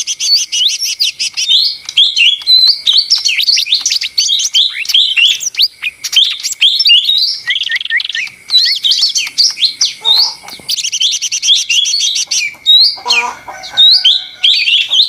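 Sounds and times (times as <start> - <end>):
bird singing chirps and trills: 0.0 - 15.0.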